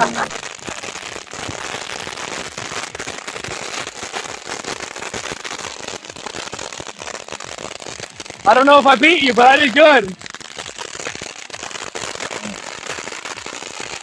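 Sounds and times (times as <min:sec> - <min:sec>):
firework fountains hissing sparks: 0:00.0 - 0:14.0
rapid crackling: 0:08.4 - 0:10.3, 0:12.2 - 0:13.0.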